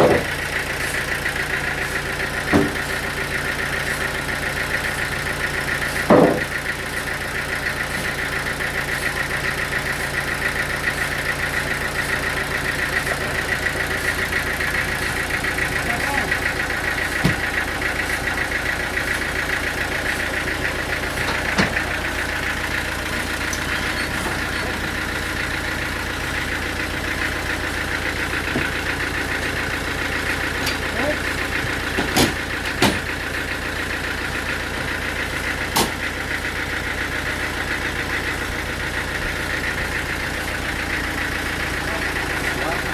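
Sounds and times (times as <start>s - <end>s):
engine idling: 0.0s - 42.9s
sharp knocks: 6.1s - 6.5s.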